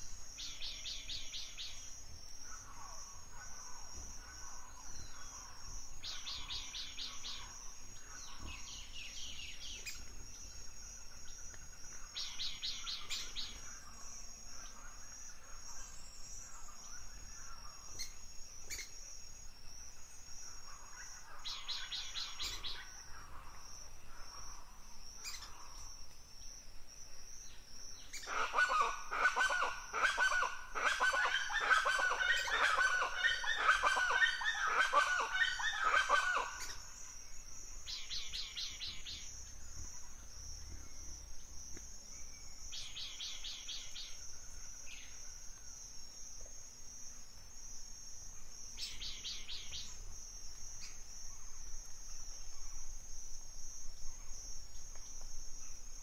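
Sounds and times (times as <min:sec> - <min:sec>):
birds singing: 0:03.9 - 0:10.6, 0:21.1 - 0:22.9, 0:28.0 - 0:41.5, 0:42.1 - 0:44.2.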